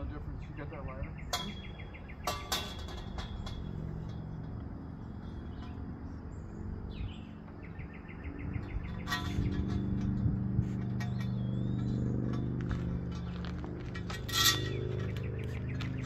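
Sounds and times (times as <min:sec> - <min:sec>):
birds chirping: 0:00.0 - 0:16.0
low steady hum: 0:00.0 - 0:16.0
bird trill: 0:00.4 - 0:04.2, 0:05.2 - 0:10.2, 0:10.8 - 0:12.5.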